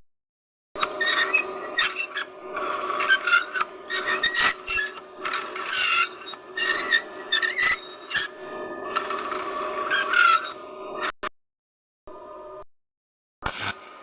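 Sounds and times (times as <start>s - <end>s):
scraping and rasping on metal: 0.8s - 11.1s.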